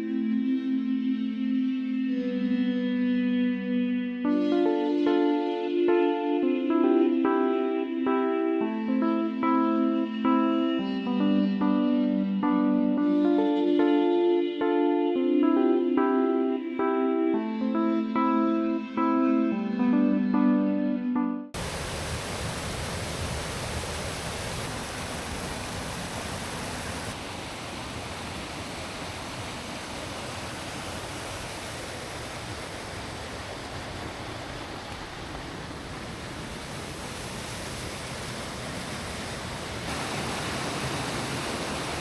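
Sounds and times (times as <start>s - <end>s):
waterfall rushing: 21.6s - 42.0s.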